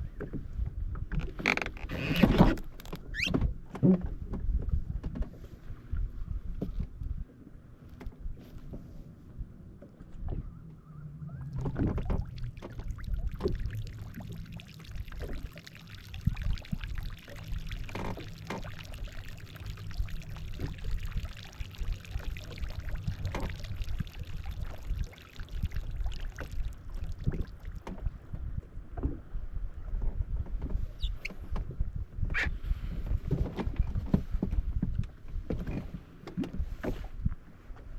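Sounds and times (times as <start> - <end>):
jet ski engine rumble: 0.0 - 37.9
water splashing and slapping: 11.4 - 31.7.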